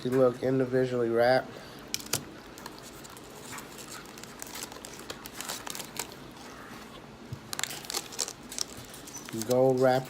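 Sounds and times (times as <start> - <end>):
wrapper crinkling: 2.0 - 10.0.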